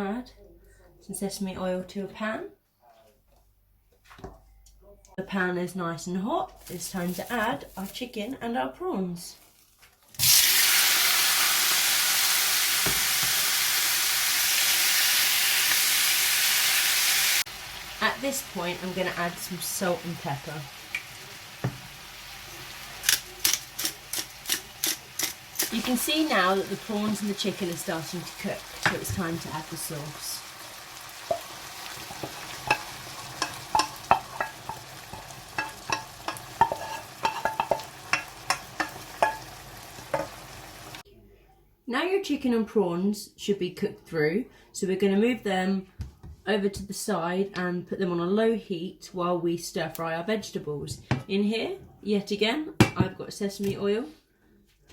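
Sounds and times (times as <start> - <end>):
food sizzling in hot oil: 10.2 - 41.0
utensil knocking against pan: 32.2 - 39.5.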